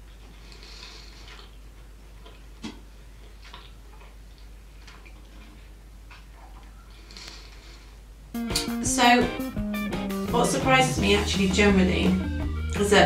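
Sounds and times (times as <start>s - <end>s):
person chewing: 0.0s - 8.0s.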